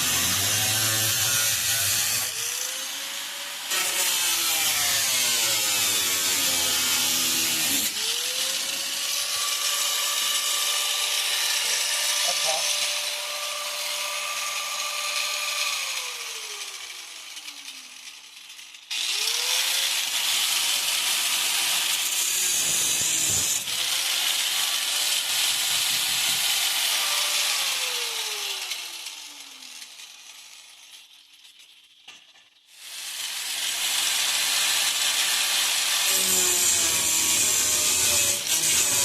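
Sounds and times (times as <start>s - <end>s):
angle grinder whining and grinding: 0.0s - 30.9s.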